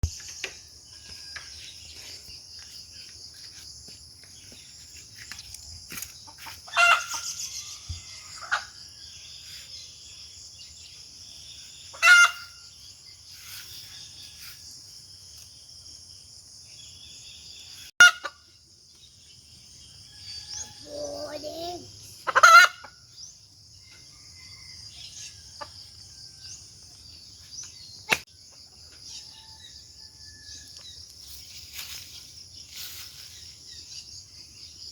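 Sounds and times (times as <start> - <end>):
steady high-pitched hiss: 30.8 - 34.9.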